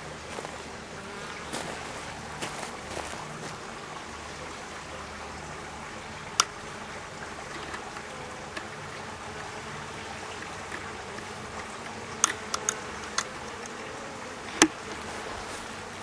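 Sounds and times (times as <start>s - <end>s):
bees buzzing: 0.0s - 16.0s
faint clicks: 10.3s - 13.8s.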